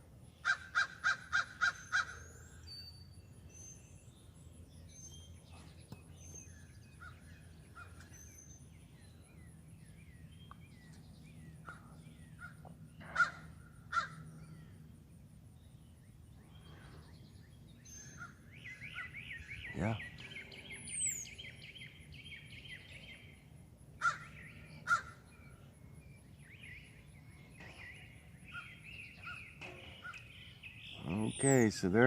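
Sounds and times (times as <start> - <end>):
small birds chirping: 0.1 - 32.0
crows cawing: 0.4 - 2.2, 11.6 - 14.2, 24.0 - 25.2.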